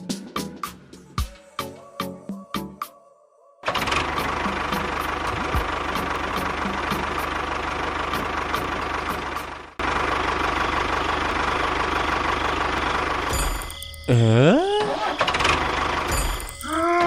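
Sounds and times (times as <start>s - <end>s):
small engine running: 3.7s - 17.0s.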